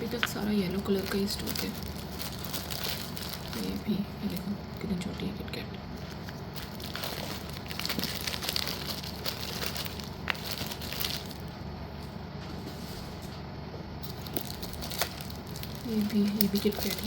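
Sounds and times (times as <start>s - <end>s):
crackly packet rustling: 0.0s - 11.7s, 14.0s - 17.0s.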